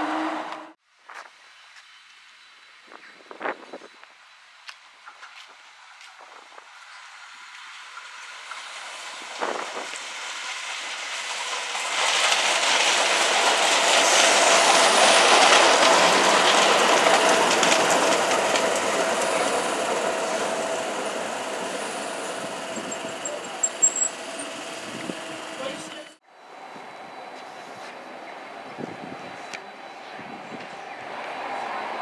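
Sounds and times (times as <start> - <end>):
train whine: 0.0 - 0.8, 6.4 - 32.0
train wheels clattering on rails: 7.6 - 26.1.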